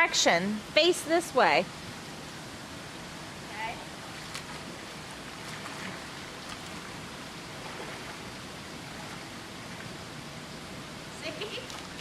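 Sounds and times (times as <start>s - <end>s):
pool water splashing: 0.1s - 12.0s
rushing water: 3.3s - 10.2s.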